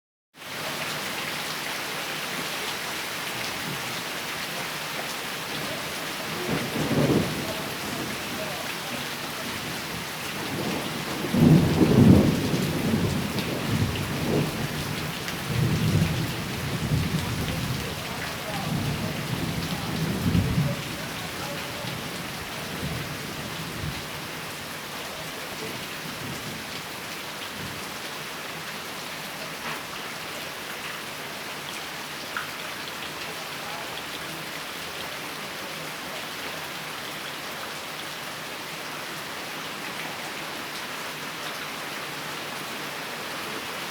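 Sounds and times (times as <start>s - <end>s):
steady rain falling: 0.4s - 43.9s
rolling thunder rumble: 6.3s - 8.7s, 9.3s - 24.0s.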